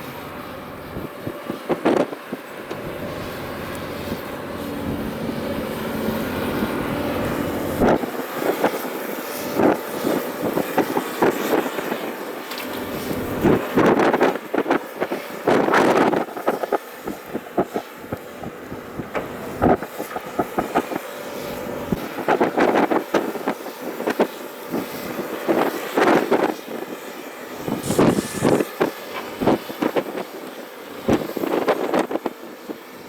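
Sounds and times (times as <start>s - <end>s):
excavator engine under load: 0.0s - 24.1s
bucket scraping stones: 27.8s - 28.8s.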